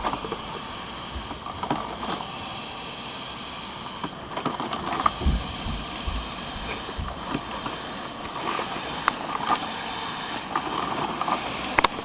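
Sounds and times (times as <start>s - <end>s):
coffee maker steam hissing: 0.0s - 12.0s
low knocks: 4.8s - 8.4s.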